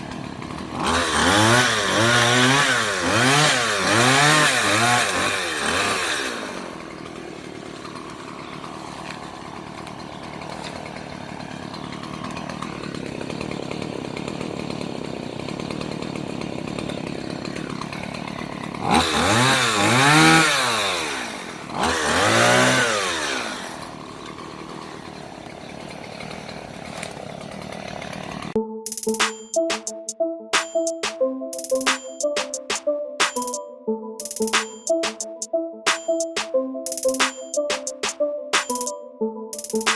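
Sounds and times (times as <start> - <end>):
chainsaw idling and revving: 0.0 - 30.1
music: 28.6 - 39.9.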